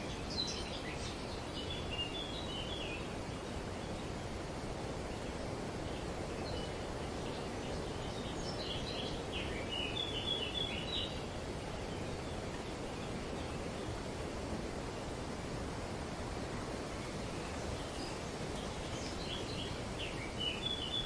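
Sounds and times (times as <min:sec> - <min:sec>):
wind rustling tree leaves: 0:00.0 - 0:21.0.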